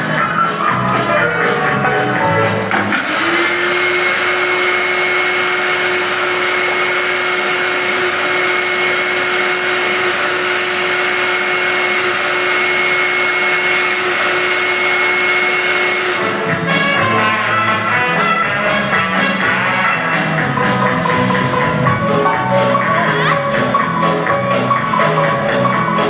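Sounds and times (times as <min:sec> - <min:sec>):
vacuum cleaner running: 0:00.0 - 0:24.3.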